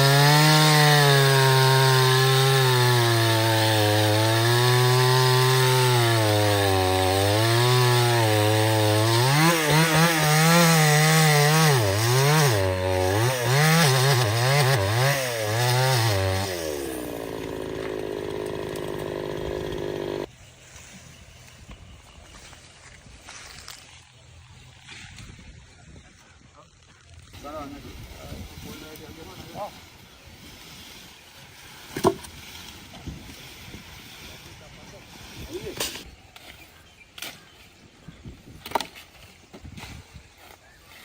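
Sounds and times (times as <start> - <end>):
chainsaw cutting wood: 0.0 - 20.3.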